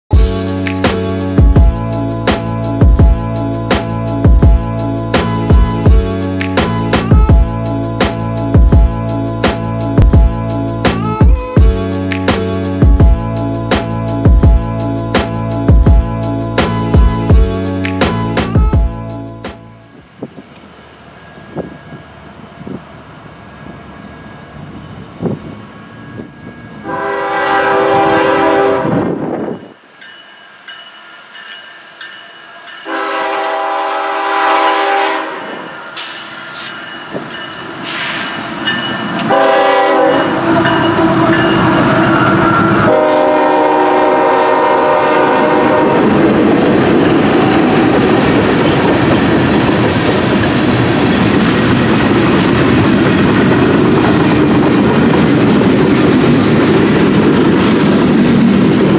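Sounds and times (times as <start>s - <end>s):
train passing with clickety-clack: 0.1s - 58.9s
locomotive air horn: 26.8s - 29.2s, 32.9s - 35.7s, 39.3s - 46.3s.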